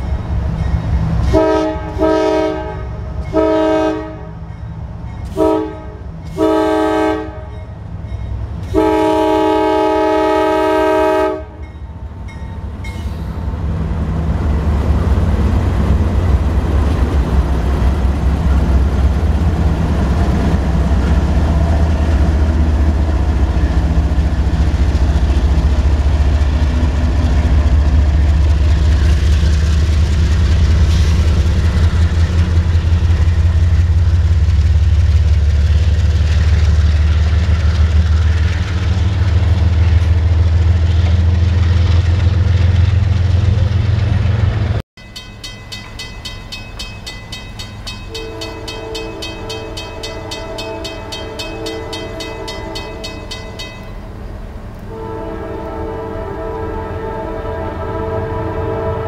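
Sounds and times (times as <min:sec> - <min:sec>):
crossing bell ringing: 0:00.0 - 0:01.4, 0:07.4 - 0:08.8, 0:11.6 - 0:13.2, 0:45.0 - 0:54.2
diesel locomotive engines droning: 0:00.0 - 0:59.0
freight cars rolling past: 0:11.9 - 0:56.2.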